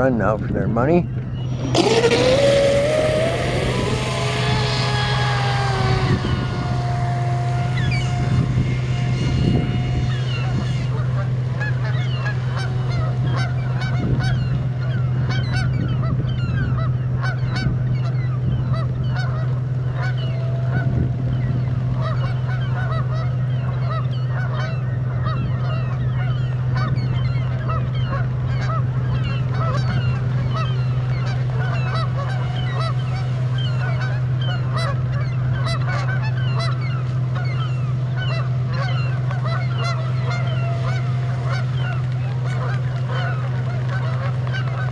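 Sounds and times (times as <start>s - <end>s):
steady low hum: 1.0s - 15.4s
geese honking: 1.4s - 14.6s, 30.0s - 44.9s.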